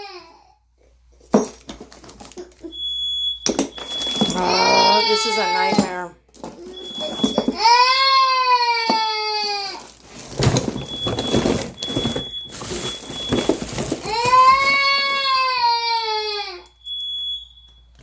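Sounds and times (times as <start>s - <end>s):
young child crying: 0.0s - 0.6s, 4.4s - 5.9s, 7.6s - 9.8s, 14.0s - 16.7s.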